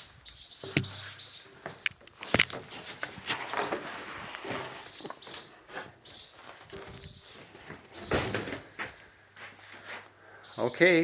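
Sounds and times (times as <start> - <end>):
swallows chirping: 0.0 - 2.0, 4.8 - 8.2.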